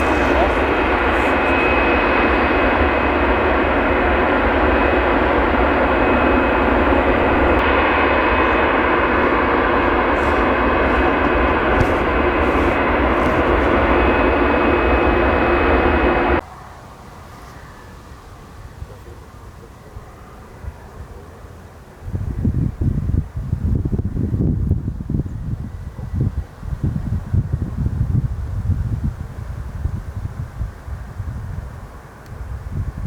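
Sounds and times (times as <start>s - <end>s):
jet engines whining: 0.0s - 16.4s.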